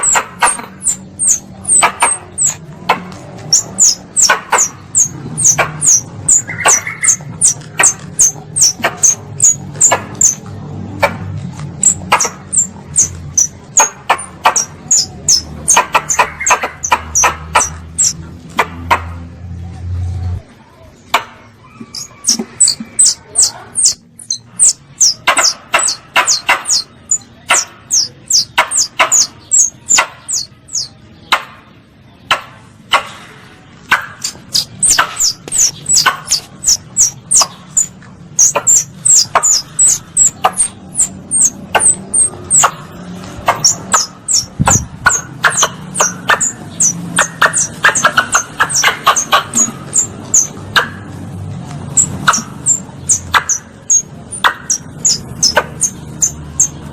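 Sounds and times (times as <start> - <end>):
squirrel chirps: 0.0 - 19.0, 21.6 - 31.0, 33.8 - 56.9.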